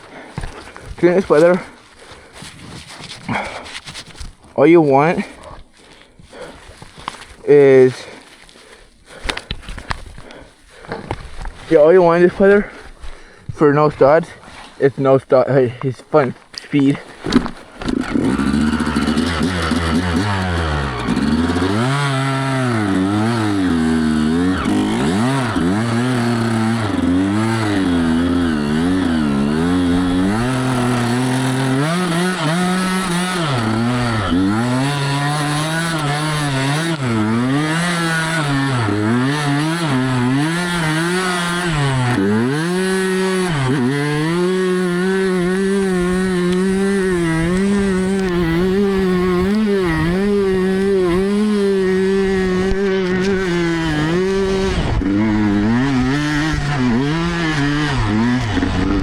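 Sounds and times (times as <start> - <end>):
dirt bike engine revving: 17.3 - 59.0.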